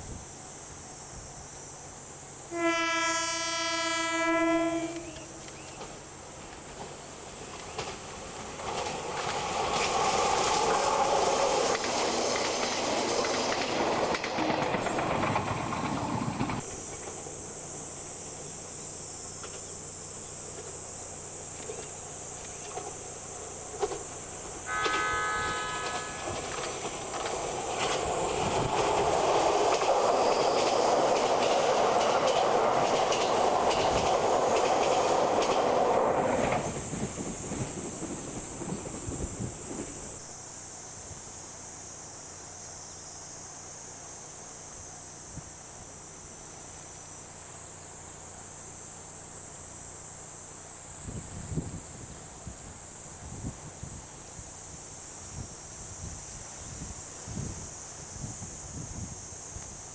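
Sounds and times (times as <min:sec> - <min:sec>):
train horn: 0:02.5 - 0:05.6, 0:24.6 - 0:28.7
train passing: 0:02.6 - 0:17.4, 0:22.7 - 0:40.2
train wheels on rails: 0:04.7 - 0:18.6, 0:21.5 - 0:40.3.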